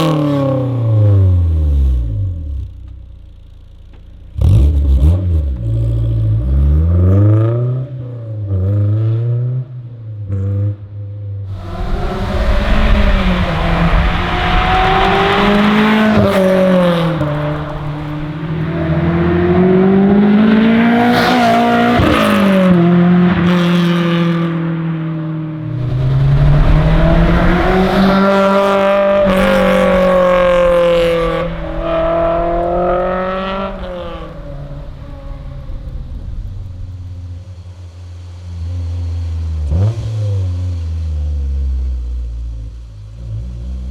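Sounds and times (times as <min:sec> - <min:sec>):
car engine revving hard: 0:11.5 - 0:24.6, 0:25.7 - 0:37.3.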